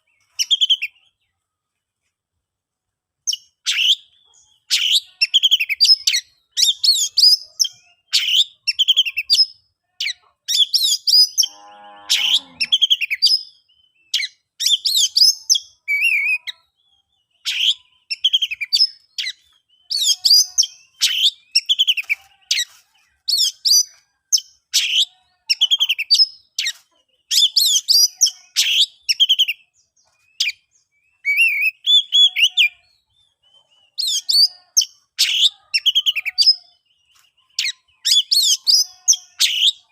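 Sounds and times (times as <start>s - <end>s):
bird singing whistled phrases: 14.0s - 16.8s, 30.4s - 32.9s.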